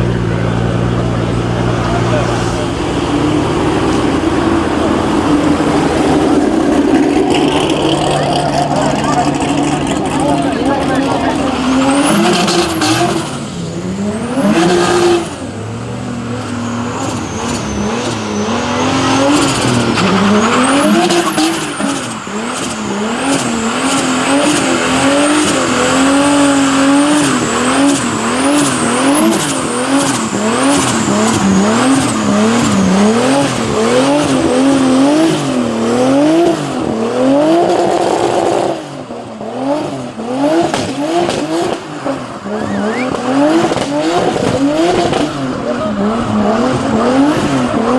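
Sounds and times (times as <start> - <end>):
car engine revving: 0.0 - 47.9
tyres squealing: 1.1 - 35.2, 42.4 - 43.6.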